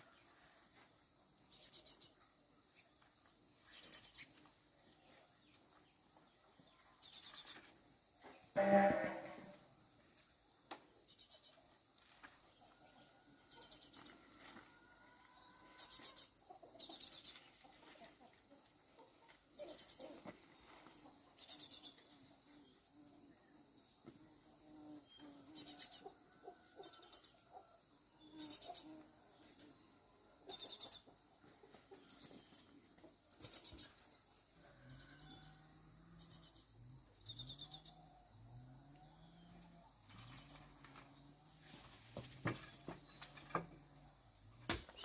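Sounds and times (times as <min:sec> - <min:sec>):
insect pulsing trills: 0:36.2 - 0:38.0.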